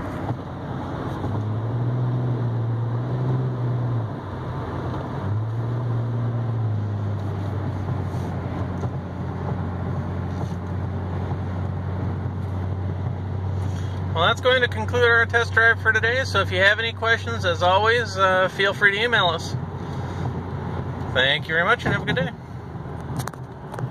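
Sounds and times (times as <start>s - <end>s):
car engine accelerating: 0.0s - 17.0s
tyre and road noise: 0.0s - 23.9s.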